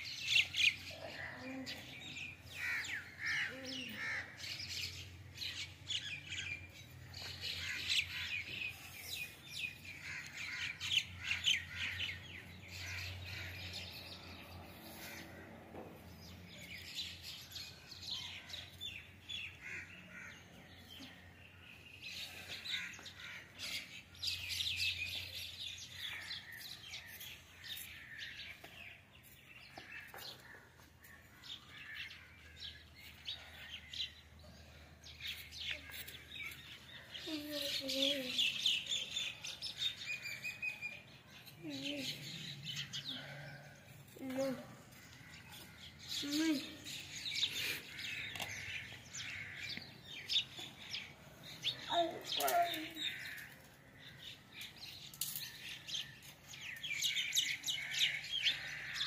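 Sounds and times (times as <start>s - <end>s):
small birds twittering: 16.0s - 59.0s.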